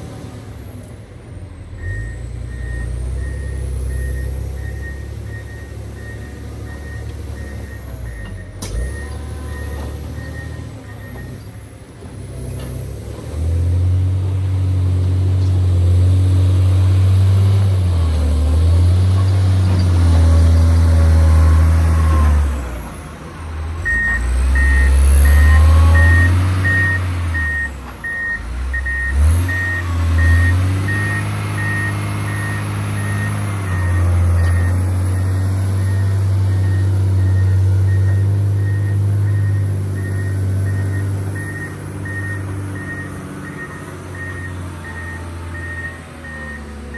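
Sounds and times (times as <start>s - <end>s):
diesel engine revving: 0.0s - 46.9s
reversing alarm beeping: 1.8s - 11.4s, 23.8s - 46.9s.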